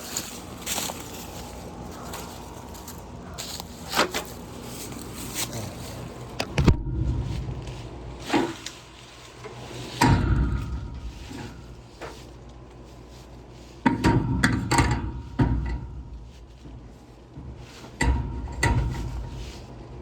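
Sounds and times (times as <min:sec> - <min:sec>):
steady low rumble: 0:00.0 - 0:20.0
knocks of hard equipment: 0:06.4 - 0:07.7, 0:10.0 - 0:12.2, 0:13.8 - 0:16.1.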